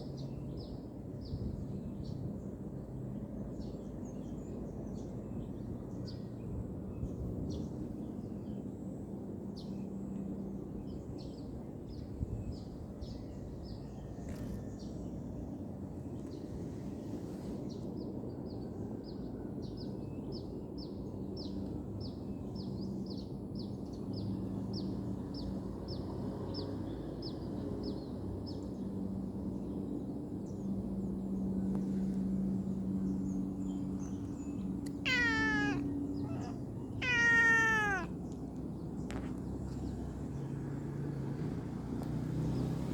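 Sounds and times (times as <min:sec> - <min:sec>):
cat meowing: 0:34.9 - 0:38.2
faint high chirping: 0:35.0 - 0:38.1.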